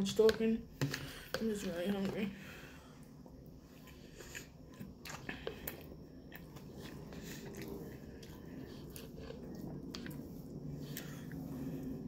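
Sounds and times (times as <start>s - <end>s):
person chewing food: 3.0s - 12.0s.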